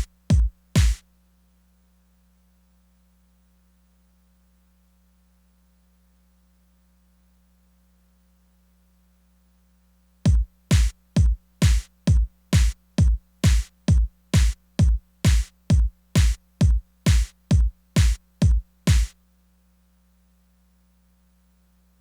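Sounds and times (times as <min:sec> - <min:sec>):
electronic kick drum hits: 0:00.0 - 0:01.0, 0:10.3 - 0:19.1.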